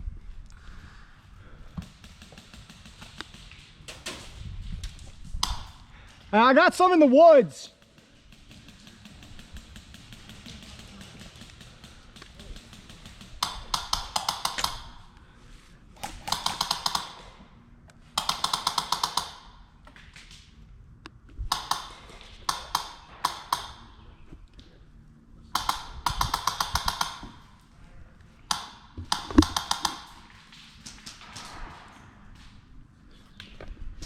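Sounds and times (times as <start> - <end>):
airsoft gun full-auto bursts: 7.8 - 15.1, 16.0 - 17.3, 18.2 - 19.5, 21.5 - 23.9, 25.5 - 27.5, 28.5 - 30.2.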